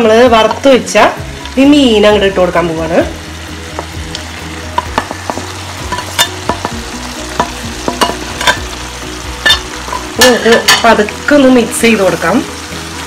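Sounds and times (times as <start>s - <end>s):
gravy boiling and sizzling: 0.0s - 13.0s
clicks and taps in pan: 3.7s - 8.7s.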